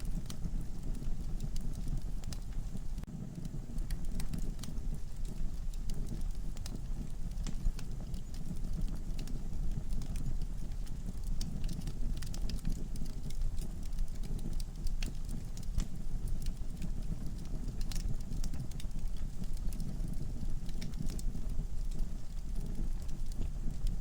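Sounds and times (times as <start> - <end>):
logs crackling and popping: 0.0 - 24.0
rush of flames: 0.0 - 24.0.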